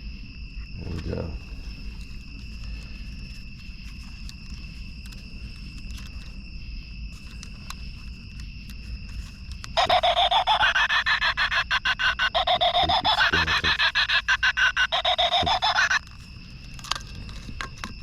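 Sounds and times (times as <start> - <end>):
crickets chirring: 0.0 - 18.0
rapidly pulsing pitched sound: 9.8 - 16.0.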